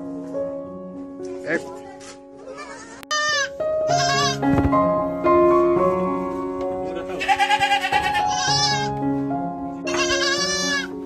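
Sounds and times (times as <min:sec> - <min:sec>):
gentle piano music: 0:00.0 - 0:11.0
sheep bleating: 0:02.4 - 0:04.4, 0:07.1 - 0:08.9, 0:09.9 - 0:11.0.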